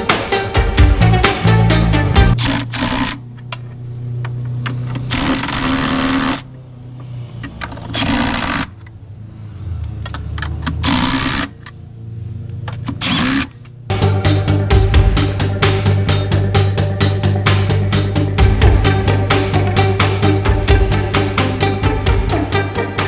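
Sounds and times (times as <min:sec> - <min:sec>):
background music: 0:00.0 - 0:03.3, 0:13.9 - 0:23.0.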